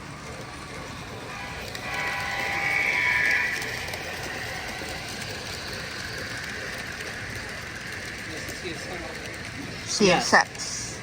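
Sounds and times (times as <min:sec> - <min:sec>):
room noise: 0:00.0 - 0:10.0
model train running hiss: 0:00.0 - 0:11.0
model train horn: 0:01.3 - 0:05.0.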